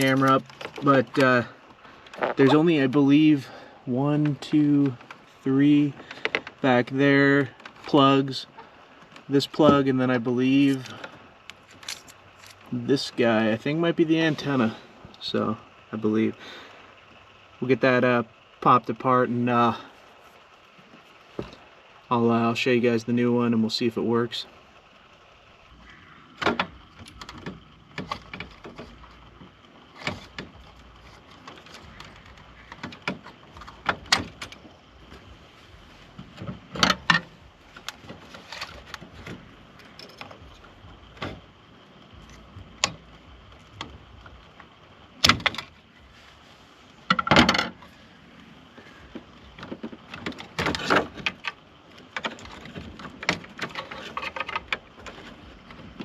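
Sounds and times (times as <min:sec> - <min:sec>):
clicks and rattles behind dashboard: 0:00.0 - 0:03.3, 0:04.0 - 0:15.5, 0:26.4 - 0:41.6, 0:42.2 - 0:45.8, 0:47.0 - 0:48.0, 0:48.7 - 0:56.0.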